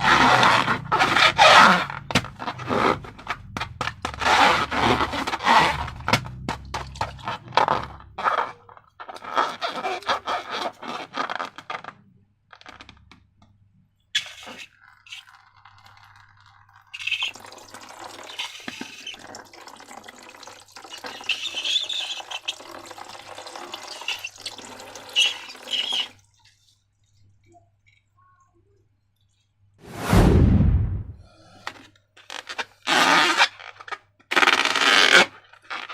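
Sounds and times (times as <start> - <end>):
liquid slime squishing: 14.2 - 29.6.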